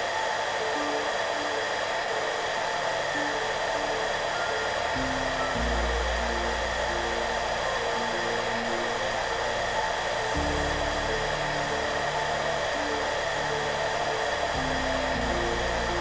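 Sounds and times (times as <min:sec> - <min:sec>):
hairdryer running: 0:00.0 - 0:16.0
soft background music: 0:00.0 - 0:16.0.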